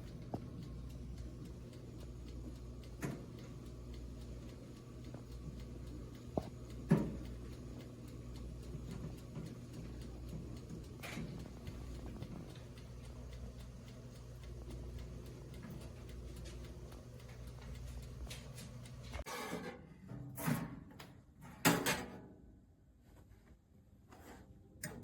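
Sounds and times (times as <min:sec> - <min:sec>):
toaster oven fan hum: 0:00.0 - 0:19.3.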